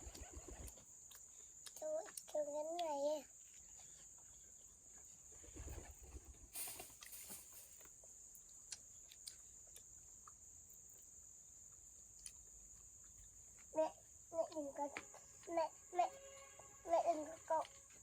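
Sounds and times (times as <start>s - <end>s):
rustling and handling noises: 4.9s - 8.0s.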